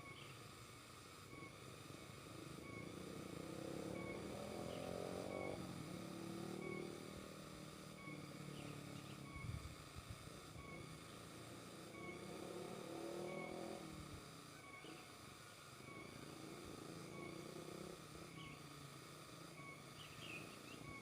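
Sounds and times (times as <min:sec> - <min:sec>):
passing vehicle engine: 0:02.2 - 0:09.8, 0:10.5 - 0:15.2, 0:15.8 - 0:21.0
faint high chirps: 0:02.5 - 0:09.7, 0:10.5 - 0:11.2, 0:11.8 - 0:16.4.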